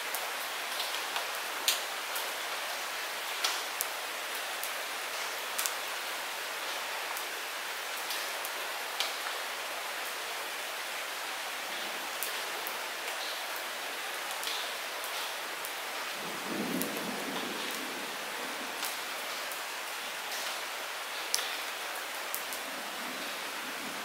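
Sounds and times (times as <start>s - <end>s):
light rain falling: 0.0s - 24.0s.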